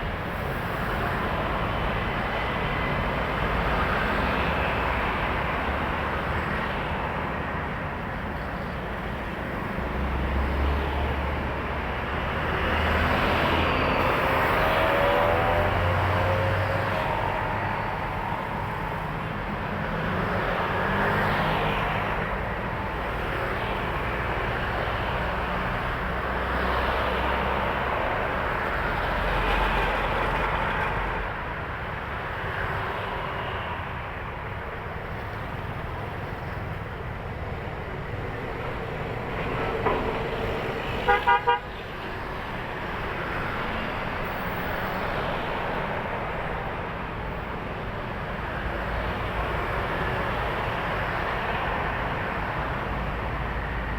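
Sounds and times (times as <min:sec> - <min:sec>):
heavy highway traffic: 0:00.0 - 0:53.9
vehicle horn toots: 0:41.1 - 0:41.7.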